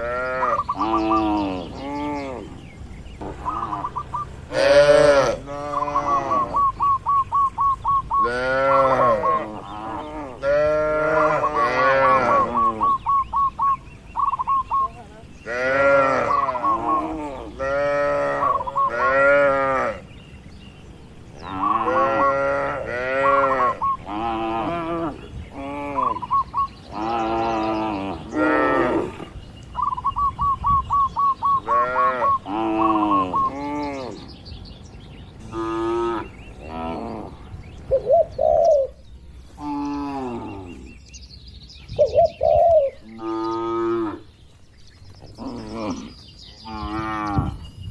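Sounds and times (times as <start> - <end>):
bird chirping: 0.0 - 22.6, 23.6 - 24.4, 25.1 - 47.9
cattle mooing: 4.5 - 6.8, 8.2 - 13.0, 15.5 - 20.0, 21.5 - 26.2.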